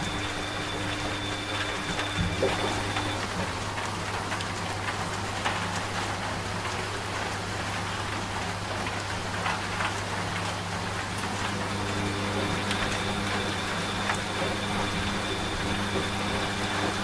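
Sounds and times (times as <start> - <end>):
rain falling: 0.0 - 17.0
washing machine humming: 0.0 - 17.0.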